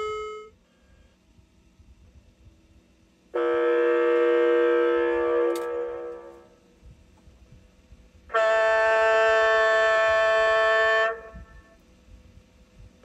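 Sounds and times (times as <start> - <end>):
chord-like horn blasts: 3.3 - 6.7, 8.3 - 11.7.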